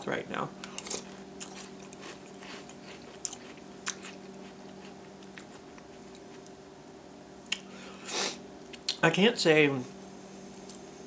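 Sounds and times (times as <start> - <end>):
steady low hum: 0.0 - 11.0
person chewing cereal: 0.6 - 6.6.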